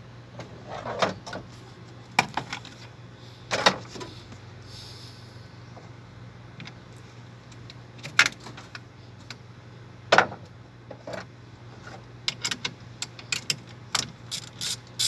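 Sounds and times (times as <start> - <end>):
steady low hum: 2.9 - 6.5.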